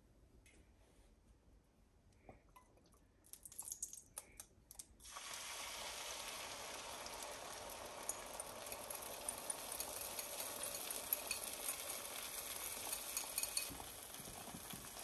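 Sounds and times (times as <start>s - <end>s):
food sizzling in a pan: 5.0s - 15.0s.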